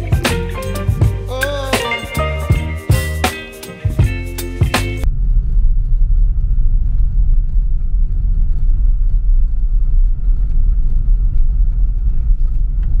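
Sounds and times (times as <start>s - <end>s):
loud low rumble: 4.0s - 13.0s.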